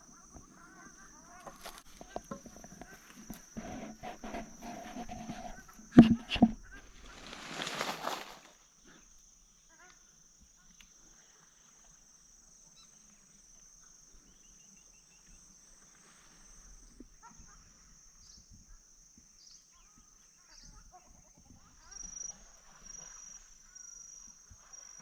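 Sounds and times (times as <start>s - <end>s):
high-pitched insect drone: 17.8s - 25.0s.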